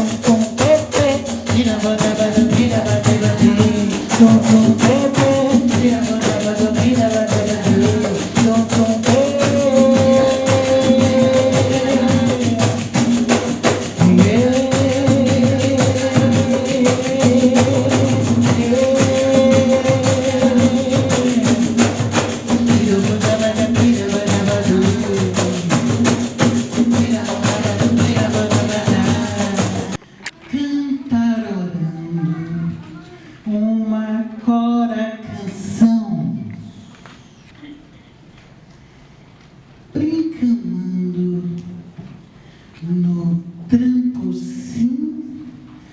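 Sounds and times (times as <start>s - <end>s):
frame drums fast rhythm: 0.0s - 30.0s.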